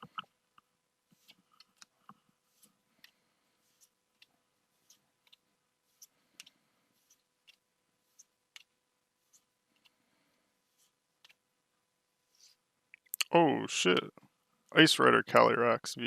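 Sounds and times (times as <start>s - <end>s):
trading cards being flipped: 1.1s - 1.9s, 3.6s - 9.9s, 12.3s - 12.6s.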